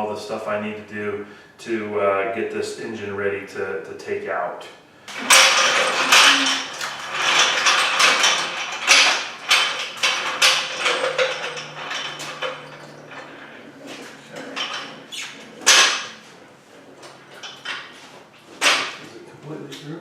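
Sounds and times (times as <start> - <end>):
metal parts scraping and knocking: 5.1 - 16.4, 17.0 - 19.0.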